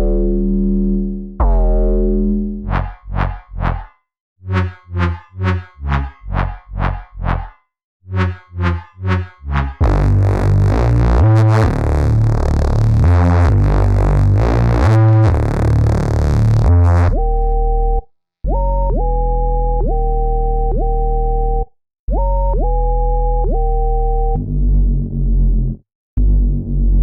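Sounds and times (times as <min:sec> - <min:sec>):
synth notes sliding up in pitch: 0:00.0 - 0:03.8
buzzy synth bass line: 0:00.0 - 0:03.9, 0:04.5 - 0:18.0, 0:18.6 - 0:27.0
pulsing synth bass: 0:00.0 - 0:03.9, 0:04.5 - 0:27.0.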